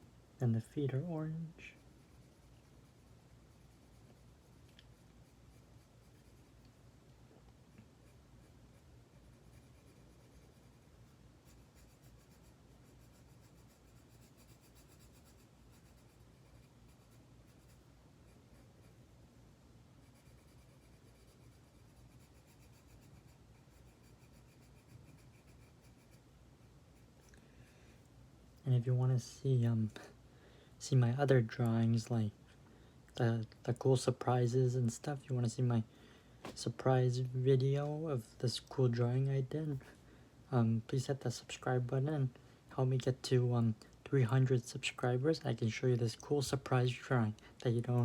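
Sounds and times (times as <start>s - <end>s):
colouring tool scratching on paper: 1.8s - 6.7s, 8.0s - 19.0s, 20.0s - 26.3s.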